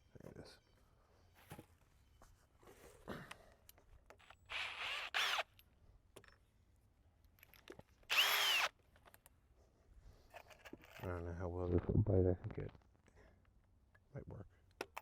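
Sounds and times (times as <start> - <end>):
power drill driving screws: 4.5 - 5.6, 8.1 - 8.8.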